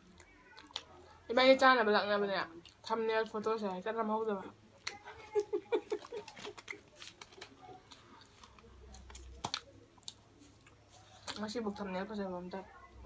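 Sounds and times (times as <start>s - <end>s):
people chewing food: 0.0s - 1.3s, 2.4s - 3.4s, 4.6s - 12.0s.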